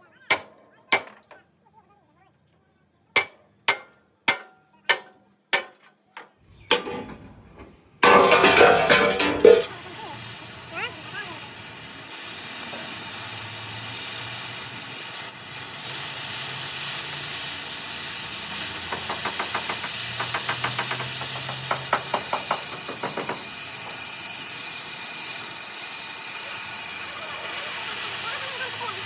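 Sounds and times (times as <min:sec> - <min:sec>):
rapid taps: 0:18.9 - 0:24.1.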